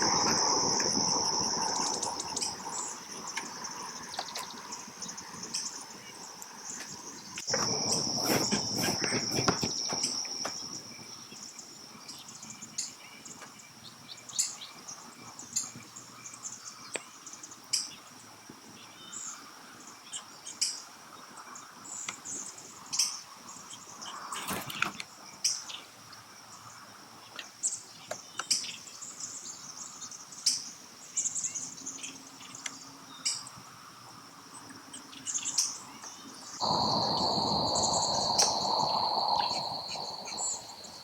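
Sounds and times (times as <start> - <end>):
insect trilling: 0.0 - 10.9, 36.6 - 41.0
rushing noise: 7.5 - 10.4, 36.6 - 41.0.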